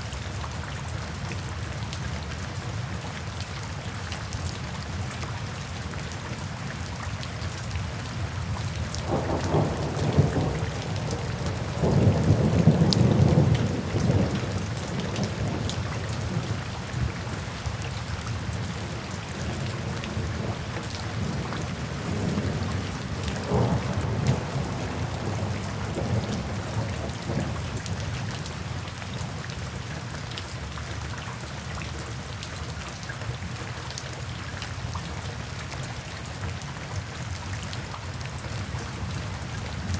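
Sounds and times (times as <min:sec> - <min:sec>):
steady rain: 0:00.0 - 0:39.9
thunder rumbling: 0:09.0 - 0:16.6, 0:21.2 - 0:27.7.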